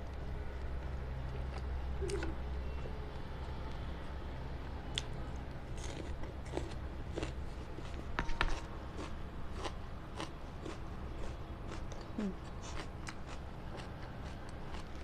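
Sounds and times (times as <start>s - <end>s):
person chewing crunchy food: 4.9s - 15.0s.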